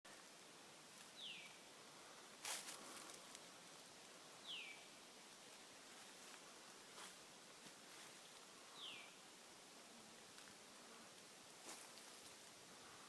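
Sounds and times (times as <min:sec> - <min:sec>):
crackle or rustle: 0:02.4 - 0:04.0, 0:11.2 - 0:12.6.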